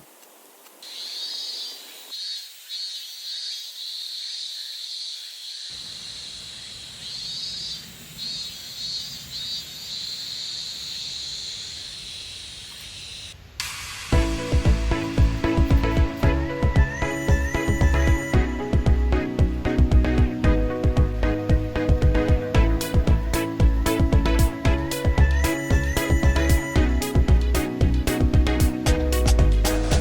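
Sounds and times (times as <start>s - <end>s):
insects chirring: 0.0s - 13.4s
faint outdoor background noise: 0.0s - 30.0s.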